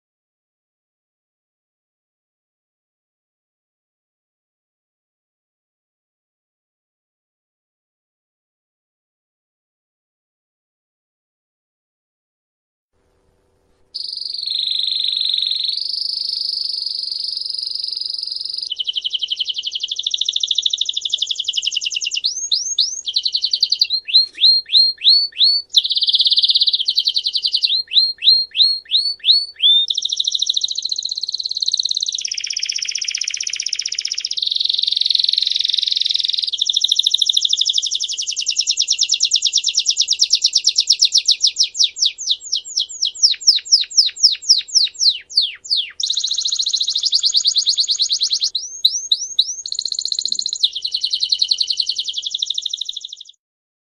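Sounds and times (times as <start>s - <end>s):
songbird singing trills: 14.0s - 53.4s.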